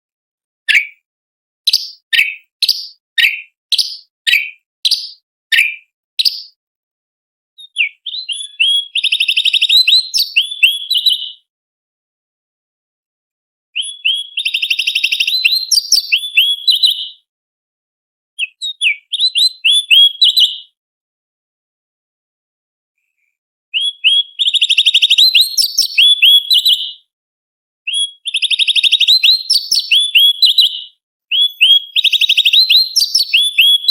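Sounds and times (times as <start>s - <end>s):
bird chattering song: 0.7s - 1.0s, 1.7s - 6.6s, 7.6s - 11.4s, 13.8s - 17.2s, 18.4s - 20.7s, 23.8s - 27.0s, 27.9s - 33.9s.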